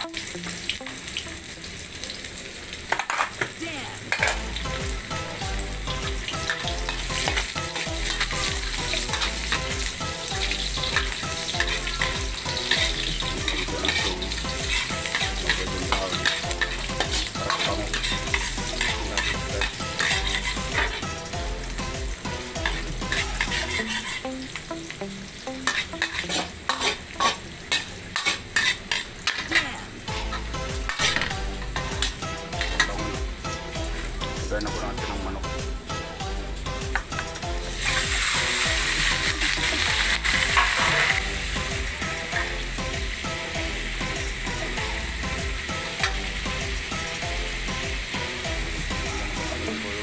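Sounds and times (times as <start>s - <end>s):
food sizzling in hot oil: 0.0s - 50.0s
metal ladle scraping a wok: 6.4s - 21.1s, 22.6s - 24.4s, 25.6s - 31.3s, 37.8s - 41.3s.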